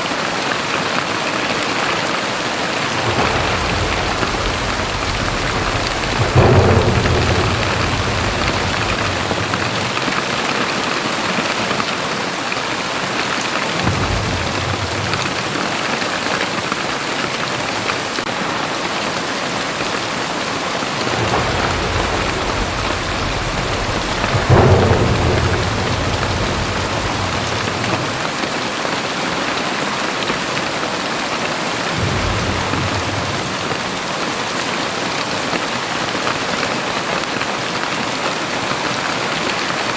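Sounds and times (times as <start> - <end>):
heavy rain pouring: 0.0 - 39.9
deep low rumbles: 2.7 - 10.7, 20.6 - 28.5, 32.0 - 34.1.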